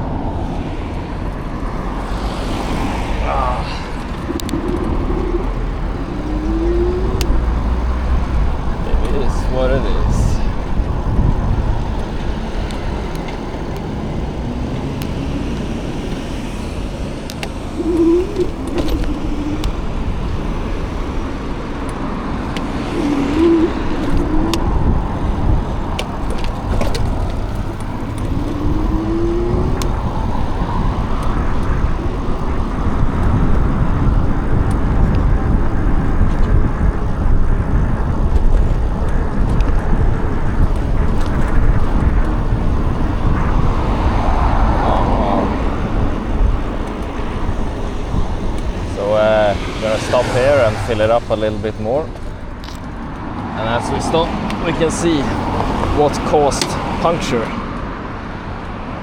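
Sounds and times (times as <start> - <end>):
wavering whines: 0.0 - 33.9, 40.4 - 52.9
road and traffic noise: 0.0 - 59.0
wind rumbling on microphone: 0.0 - 59.0.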